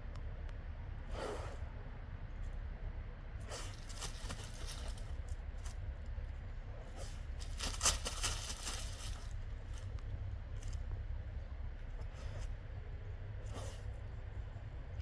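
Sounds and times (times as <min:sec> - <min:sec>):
dog paws scraping soil: 0:03.4 - 0:06.1, 0:06.7 - 0:11.1.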